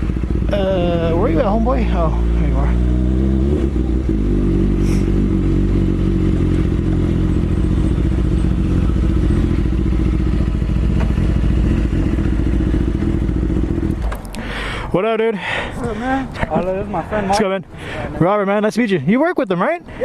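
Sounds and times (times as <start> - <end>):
motorcycle engine idling: 0.0 - 14.6.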